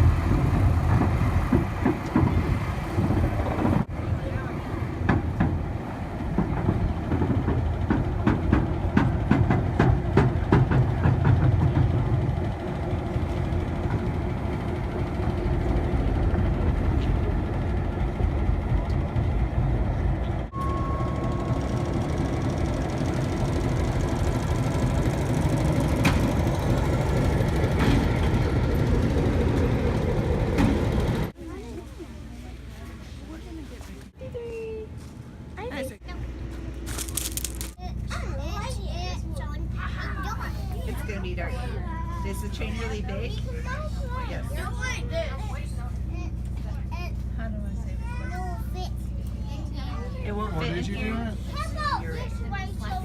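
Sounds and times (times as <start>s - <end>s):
train rumbling: 0.0s - 53.0s
clanks and knocks: 6.3s - 12.4s
short steady tone: 20.5s - 22.0s.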